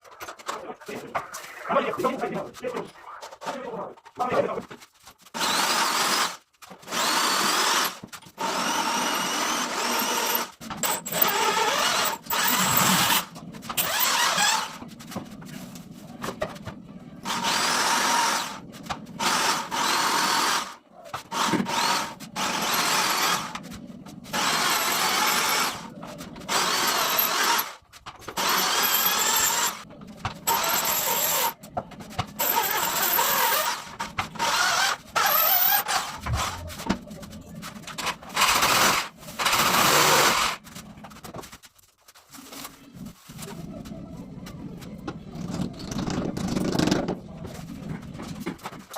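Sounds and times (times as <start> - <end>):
electric drill whining: 5.4 - 14.8, 17.3 - 18.6, 19.2 - 23.6, 24.3 - 25.9, 26.5 - 29.8, 30.5 - 31.6, 32.4 - 36.6.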